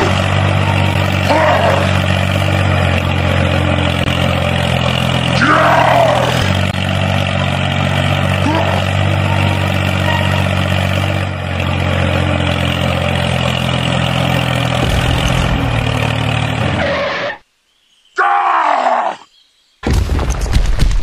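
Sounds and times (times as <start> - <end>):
loud mechanical rattling: 0.0 - 16.9
engine running: 0.0 - 17.4
groan-like sound: 1.2 - 2.0, 5.4 - 6.5.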